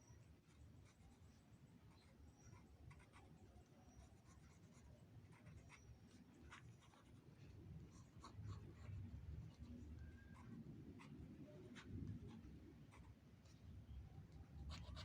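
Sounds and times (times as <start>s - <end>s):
faint low room hum: 0.0s - 15.0s.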